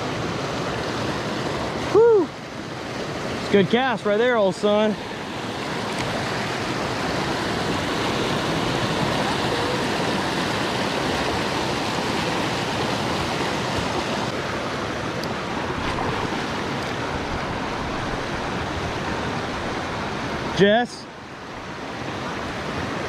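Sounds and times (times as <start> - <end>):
creek water rushing over waterfall: 0.0 - 23.0.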